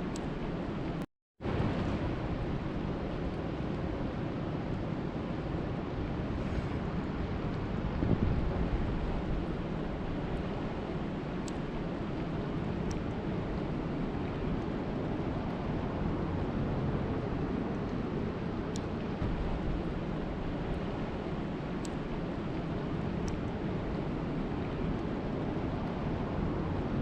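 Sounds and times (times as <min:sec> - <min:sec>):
wind buffeting microphone: 0:01.4 - 0:27.0.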